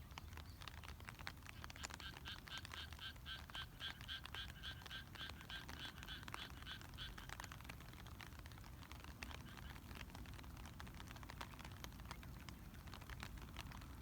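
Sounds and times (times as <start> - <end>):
raindrops pattering: 0.0 - 14.0.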